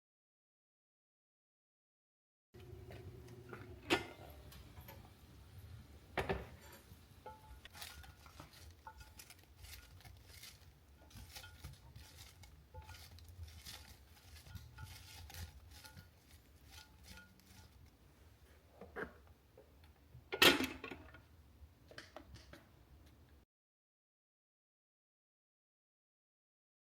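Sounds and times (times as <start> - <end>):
dishes clattering: 6.2 - 17.8
dishes and utensils clinking: 6.2 - 17.9.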